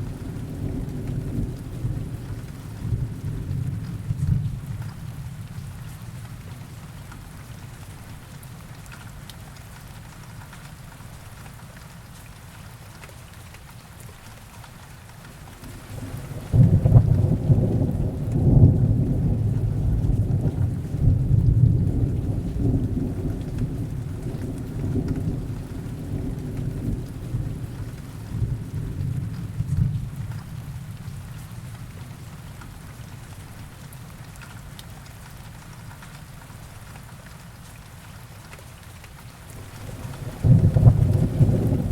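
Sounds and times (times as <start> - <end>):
heavy rain: 0.0 - 41.9
thunder rumbling: 15.7 - 31.1, 39.6 - 41.9.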